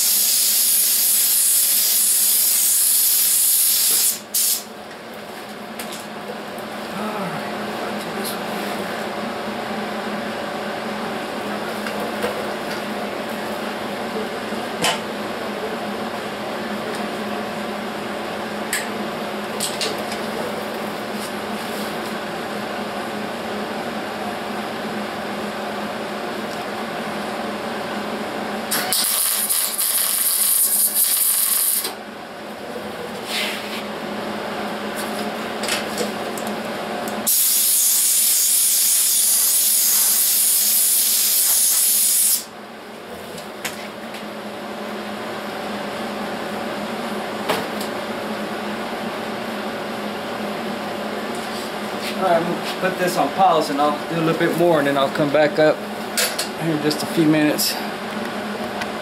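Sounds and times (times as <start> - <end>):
welding arc sizzling on metal: 0.0 - 4.6, 28.7 - 32.0, 37.3 - 42.5.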